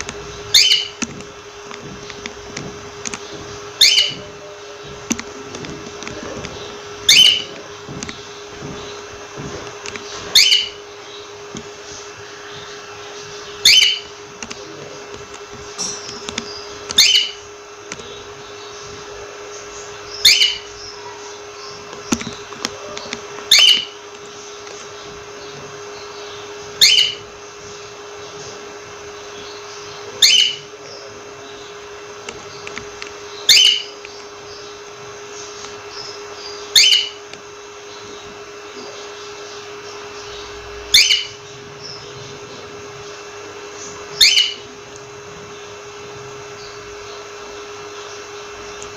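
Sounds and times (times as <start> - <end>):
steady low hum: 0.0 - 48.9
cockatiel calling: 0.3 - 1.0, 3.3 - 4.8, 5.4 - 7.8, 10.1 - 11.3, 12.4 - 14.2, 15.8 - 17.4, 20.0 - 24.0, 24.9 - 27.3, 29.4 - 31.8, 33.3 - 34.8, 35.8 - 37.3, 37.9 - 42.6, 43.8 - 44.7.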